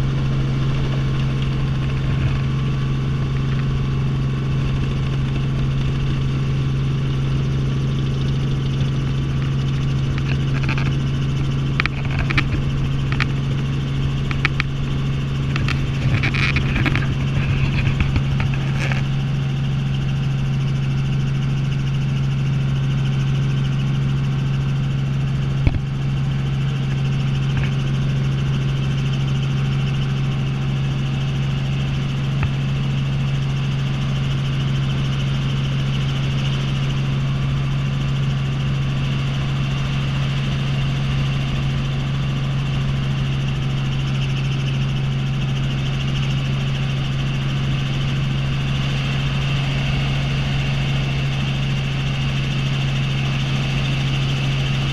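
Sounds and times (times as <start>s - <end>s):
helicopter engine and rotor drone: 0.0s - 54.9s
short clicks and crackles: 10.1s - 14.7s, 15.5s - 19.1s.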